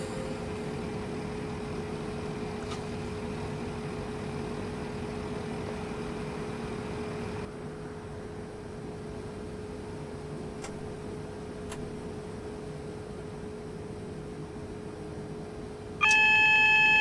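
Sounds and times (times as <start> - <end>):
constant whine: 0.0 - 7.5
train rumbling: 0.0 - 7.5
click: 16.0 - 16.3.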